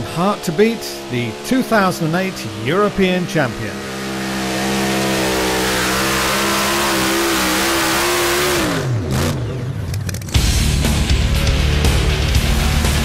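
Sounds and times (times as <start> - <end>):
tractor engine revving hard: 0.0 - 13.0
loud music: 10.4 - 13.0.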